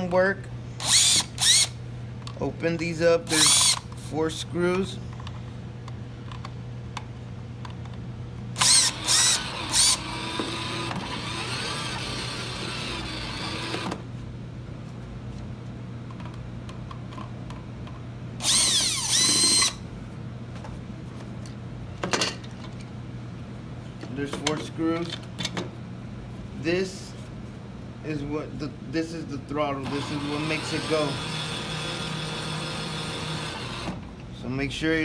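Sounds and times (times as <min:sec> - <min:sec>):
cordless drill motor whine: 0:00.8 - 0:01.8, 0:03.3 - 0:03.8, 0:08.6 - 0:14.0, 0:18.4 - 0:19.8, 0:29.8 - 0:34.0.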